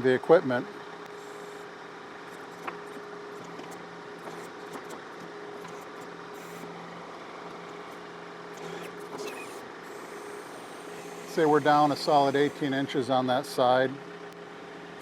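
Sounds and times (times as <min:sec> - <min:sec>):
tractor diesel engine running: 0:02.3 - 0:14.2.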